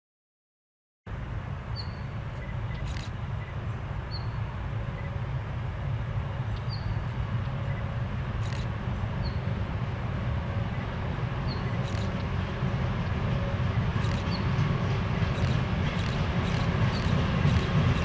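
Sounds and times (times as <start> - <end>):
diesel locomotive rumble: 1.1 - 18.0
bird chirping: 6.5 - 7.0, 11.5 - 12.3, 15.4 - 17.7.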